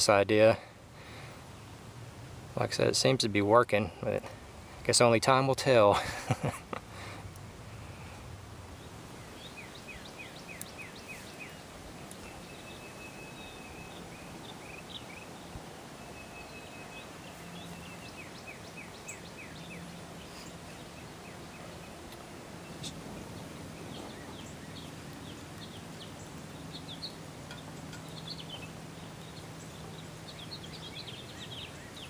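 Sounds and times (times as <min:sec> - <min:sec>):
steady background hiss: 0:00.0 - 0:32.0
bird chirping: 0:08.7 - 0:32.0.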